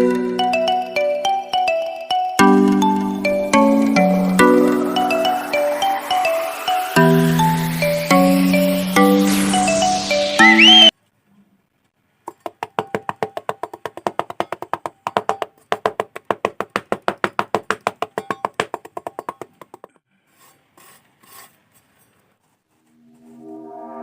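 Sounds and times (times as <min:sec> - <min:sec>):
rapid wooden knocking: 0:12.4 - 0:20.0.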